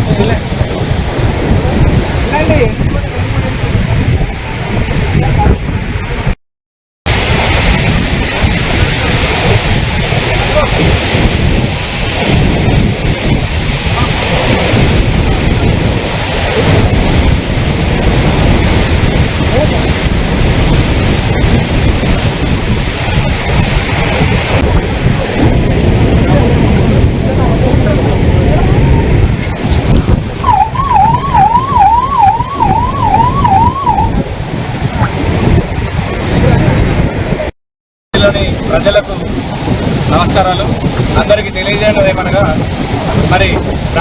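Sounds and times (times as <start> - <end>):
floodwater rushing: 0.0 - 6.4, 7.1 - 37.5, 38.2 - 44.0
wind buffeting microphone: 0.0 - 6.4, 7.1 - 37.5, 38.2 - 44.0
emergency siren yelping: 30.4 - 34.3.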